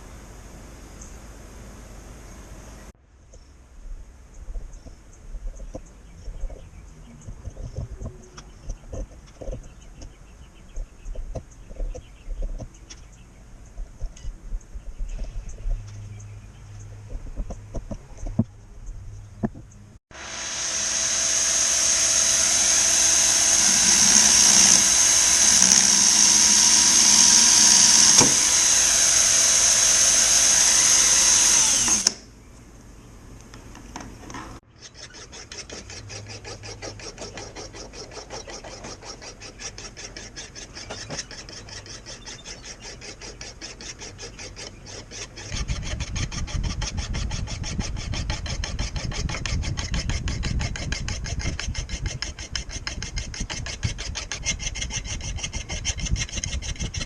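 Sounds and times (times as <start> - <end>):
power tool running: 20.1 - 32.2.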